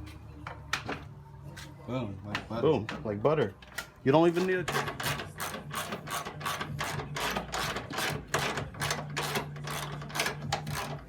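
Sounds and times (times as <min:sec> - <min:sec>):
ratchet clicking: 0:04.7 - 0:11.0.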